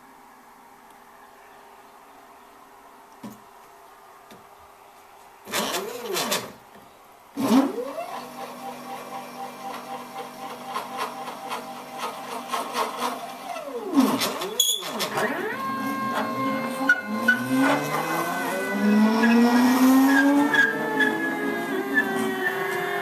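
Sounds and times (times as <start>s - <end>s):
stepper motors whining: 7.4s - 23.0s.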